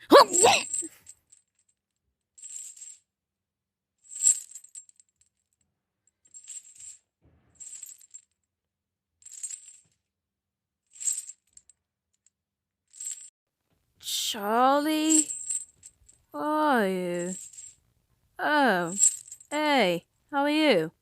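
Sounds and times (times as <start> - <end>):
short clinking rattles: 0.5 - 3.1, 4.0 - 5.6, 6.2 - 8.5.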